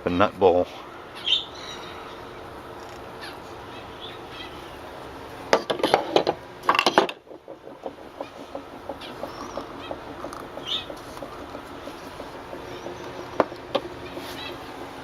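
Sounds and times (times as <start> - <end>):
wooden pieces clacking together: 5.5 - 14.2.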